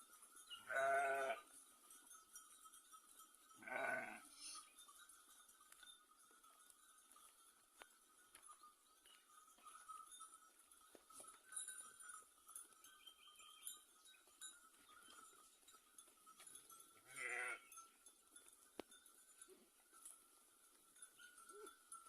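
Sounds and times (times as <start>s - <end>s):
sheep bleating: 0.7s - 1.5s, 3.6s - 4.6s, 17.0s - 17.7s.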